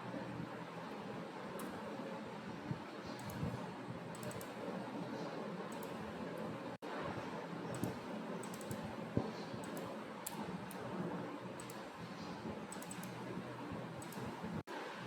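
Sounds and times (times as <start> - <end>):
low background hum: 0.0 - 15.0
mouse and keyboard clicks: 4.2 - 4.5, 7.7 - 8.9, 12.7 - 13.2.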